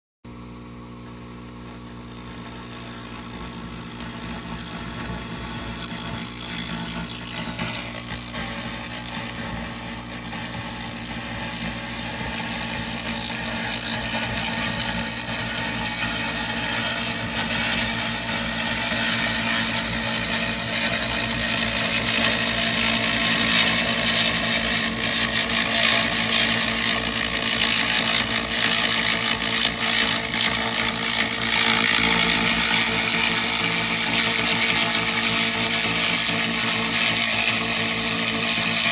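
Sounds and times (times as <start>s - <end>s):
machine hum: 0.3s - 38.9s
laser crackling hiss: 0.4s - 38.9s.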